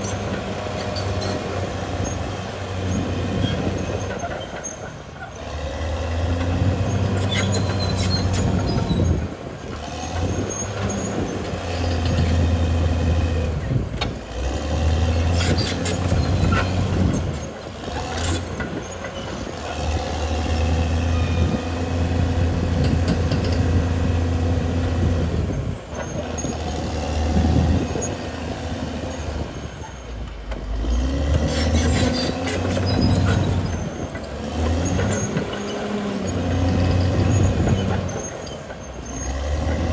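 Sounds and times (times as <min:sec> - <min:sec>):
bulldozer diesel engine working: 0:00.0 - 0:39.9
metallic clanks from steel tracks: 0:22.4 - 0:24.1, 0:29.1 - 0:39.9.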